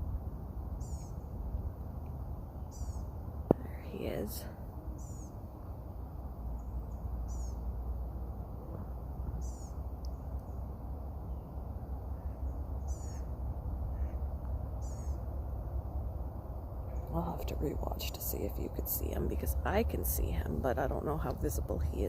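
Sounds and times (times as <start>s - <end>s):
low rumble: 0.0s - 22.0s
songbird calling: 0.8s - 1.4s, 2.6s - 3.2s, 4.9s - 5.5s, 6.5s - 7.7s, 9.3s - 10.7s, 12.1s - 15.3s.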